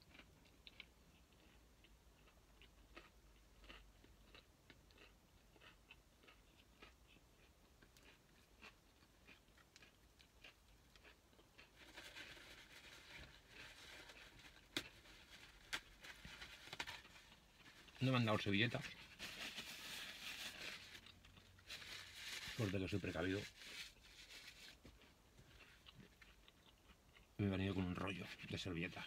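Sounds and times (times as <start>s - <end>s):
chewing food: 0.0s - 19.1s, 20.8s - 21.7s, 24.0s - 28.6s
rustling and handling noise: 11.6s - 26.3s.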